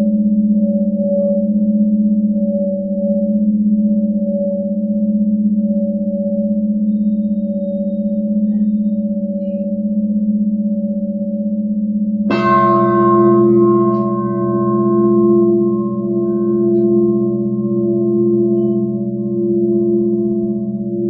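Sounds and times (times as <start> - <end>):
metal singing bowls ringing: 12.3 - 21.0.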